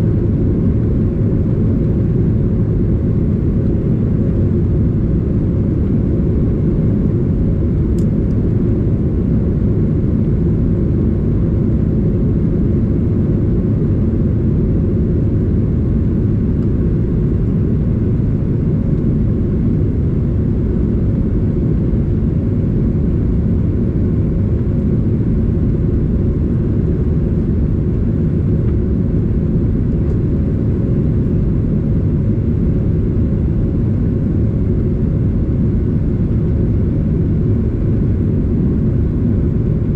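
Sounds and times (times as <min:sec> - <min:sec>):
airliner low rumble: 0:00.0 - 0:39.9
small click: 0:08.0 - 0:08.4.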